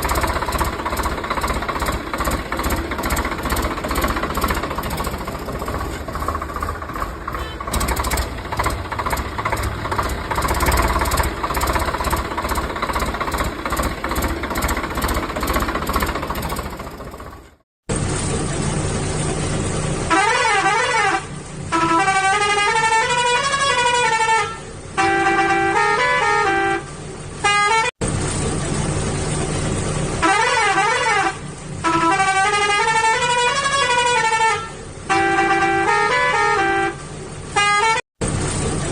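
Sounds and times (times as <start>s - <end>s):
engine chugging: 0.0s - 17.6s
sliding horn tones: 7.2s - 12.0s
beeping toy horn tune: 7.3s - 8.2s.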